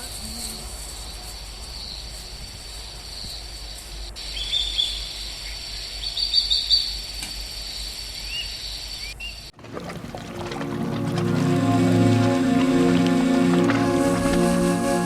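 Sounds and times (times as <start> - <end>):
low outdoor rumble: 9.6 - 15.0.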